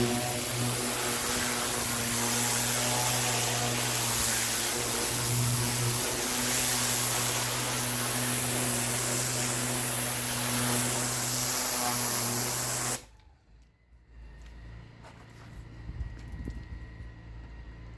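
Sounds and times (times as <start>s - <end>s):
high-pressure water jet hiss: 0.0s - 13.0s
pressure washer motor hum: 0.0s - 13.1s.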